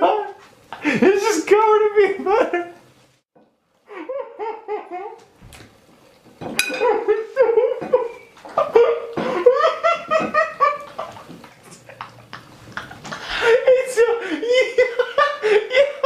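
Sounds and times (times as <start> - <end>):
person laughing hard: 3.9 - 5.2, 6.8 - 16.0.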